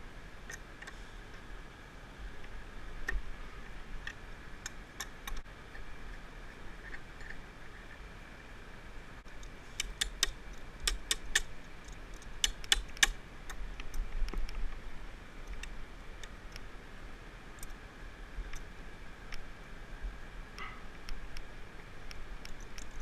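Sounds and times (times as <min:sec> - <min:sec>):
tools clicking and tapping: 0:09.4 - 0:14.4.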